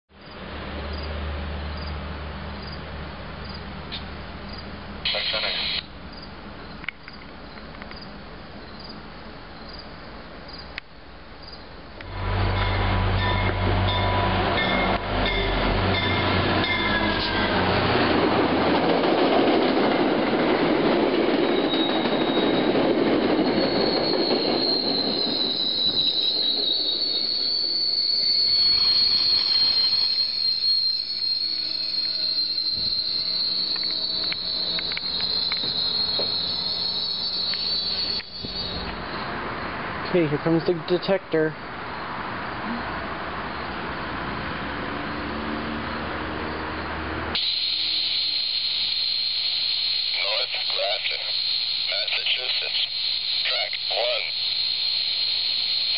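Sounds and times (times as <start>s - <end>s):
train rumbling and clattering: 5.9s - 47.4s
high wheel squeal: 12.0s - 18.2s, 21.2s - 39.3s, 47.4s - 55.9s.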